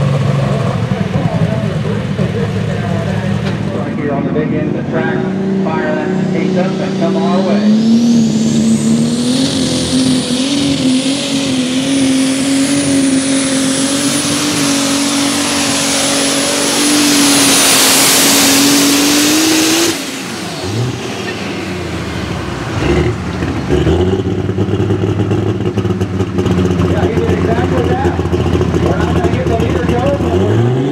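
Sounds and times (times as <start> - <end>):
diesel tractor engine under load: 0.0 - 30.9
high turbo whistle: 6.0 - 21.9.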